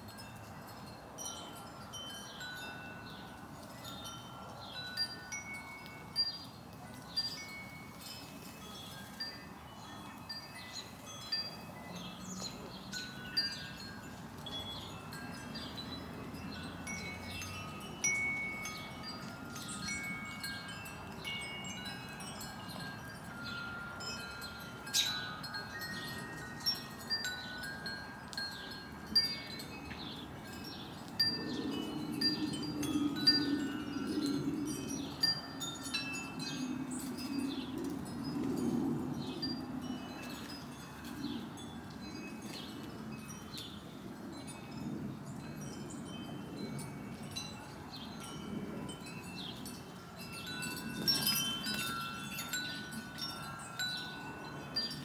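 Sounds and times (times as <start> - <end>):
wind chimes ringing: 0.0 - 55.0.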